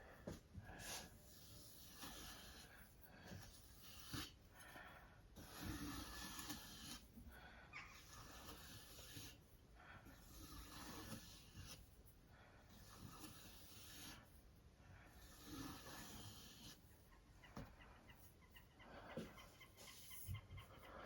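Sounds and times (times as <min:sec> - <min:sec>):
sharpening stone rasping on knife: 0:01.4 - 0:02.7, 0:05.4 - 0:07.0, 0:07.8 - 0:09.4, 0:10.2 - 0:11.8, 0:12.8 - 0:14.2, 0:15.2 - 0:16.8.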